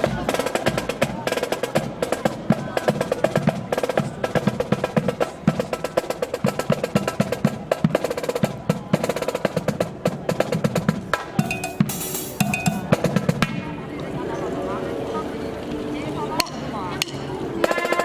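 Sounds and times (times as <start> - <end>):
snare and bass drums cadence: 0.0 - 13.8.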